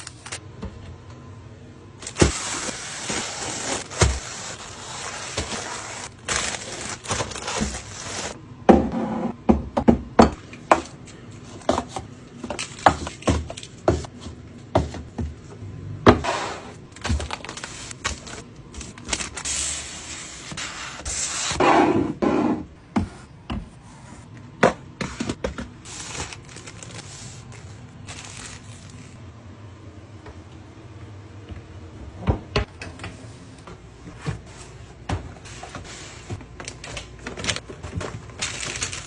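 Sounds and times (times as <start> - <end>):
food packaging rustling: 0.0 - 0.4, 2.0 - 8.4, 16.9 - 19.6, 25.8 - 29.2, 35.5 - 39.0.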